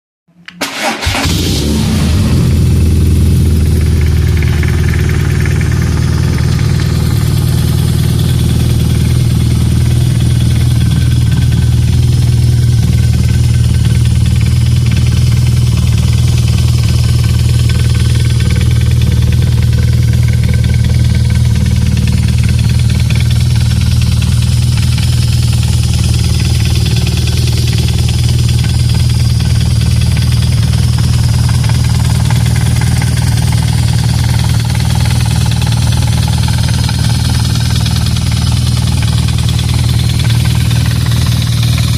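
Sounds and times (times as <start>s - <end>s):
motorcycle engine starting and idling: 0.4s - 41.9s.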